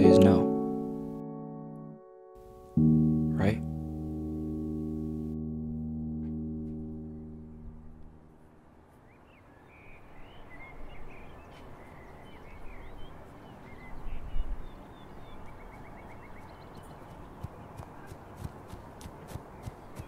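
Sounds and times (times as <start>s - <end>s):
music: 0.0s - 8.4s
small birds chirping: 8.8s - 20.0s.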